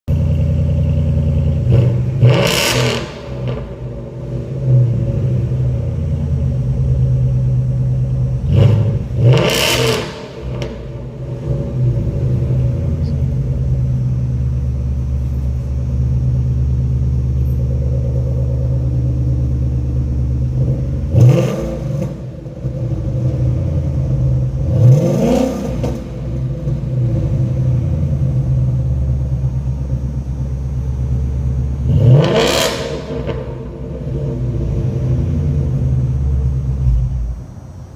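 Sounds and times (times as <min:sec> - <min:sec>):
car engine idling and revving: 0:00.1 - 0:37.9.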